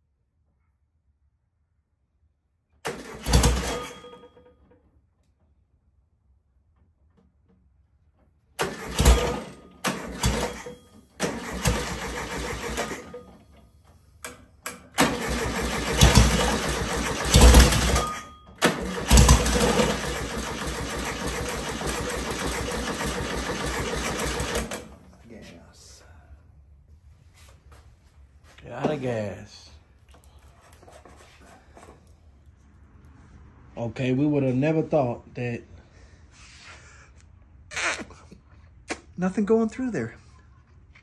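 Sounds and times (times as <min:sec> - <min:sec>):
car engine starting and running: 0:02.9 - 0:04.1, 0:08.6 - 0:13.4, 0:14.7 - 0:25.0
engine revving: 0:08.6 - 0:13.1, 0:15.0 - 0:18.1, 0:18.7 - 0:24.8.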